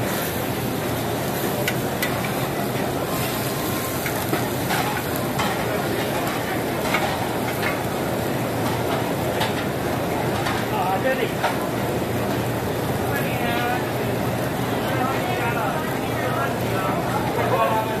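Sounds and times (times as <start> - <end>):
food sizzling on a griddle: 0.0 - 18.0.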